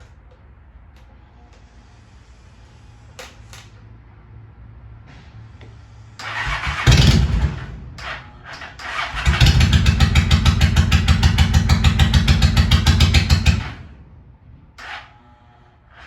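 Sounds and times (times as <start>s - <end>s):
motorcycle engine cranking and starting: 6.2s - 13.9s.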